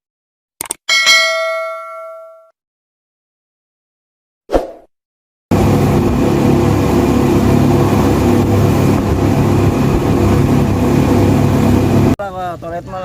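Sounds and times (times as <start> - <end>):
boat engine running: 5.5 - 13.0.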